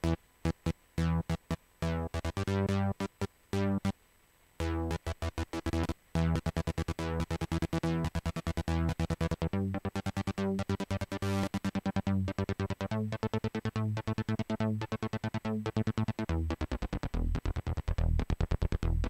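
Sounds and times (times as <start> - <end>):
synthesizer trance riff: 0.0 - 4.0, 4.6 - 19.0.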